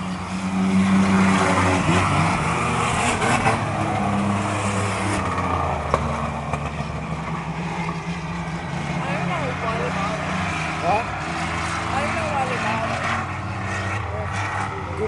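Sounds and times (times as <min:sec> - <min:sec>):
racing truck engines droning: 0:00.0 - 0:15.0.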